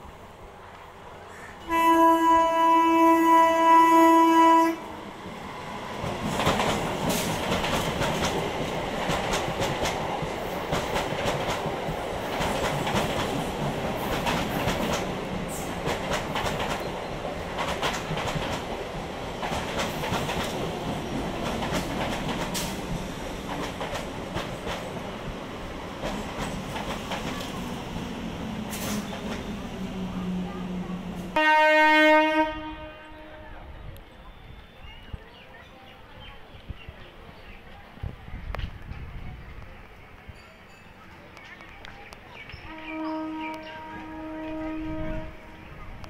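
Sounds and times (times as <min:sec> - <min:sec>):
train horn blast: 0:01.6 - 0:05.0, 0:31.3 - 0:33.7, 0:42.6 - 0:45.7
train wheels clattering over rail joints: 0:06.0 - 0:18.8, 0:19.4 - 0:25.0.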